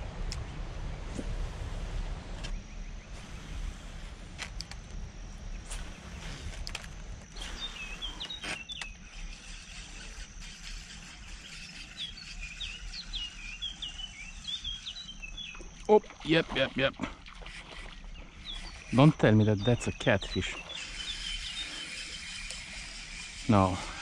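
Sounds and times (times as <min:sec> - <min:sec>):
low rumble: 0:00.0 - 0:07.3
small birds chirping: 0:07.2 - 0:24.0
thin high tone: 0:18.4 - 0:24.0.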